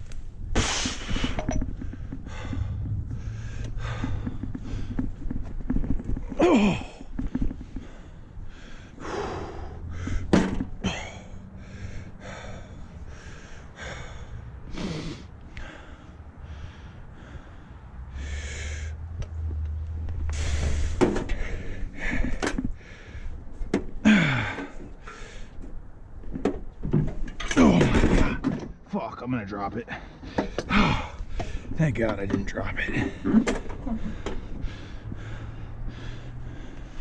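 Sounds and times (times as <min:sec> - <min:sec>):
man breathing hard: 0:00.6 - 0:05.6, 0:06.4 - 0:19.2, 0:20.3 - 0:25.7, 0:29.9 - 0:31.8, 0:32.9 - 0:37.0.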